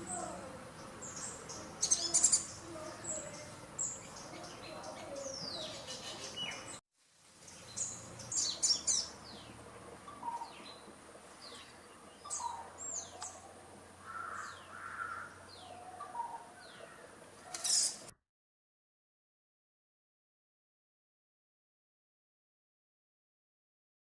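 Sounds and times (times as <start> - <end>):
small birds chirping: 0.0 - 6.8, 7.4 - 18.1.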